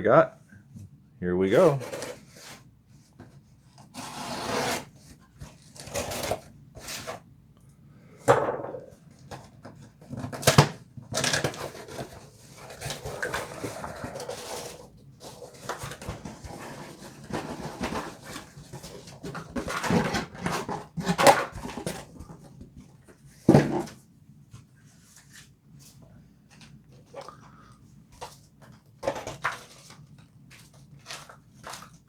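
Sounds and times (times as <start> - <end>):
cardboard rustling and tearing: 1.6 - 2.6, 3.9 - 7.2, 10.1 - 22.5.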